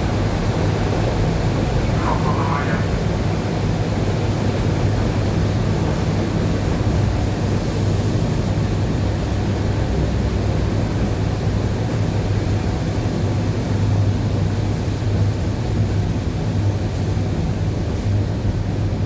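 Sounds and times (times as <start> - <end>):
low hum: 1.6 - 3.6.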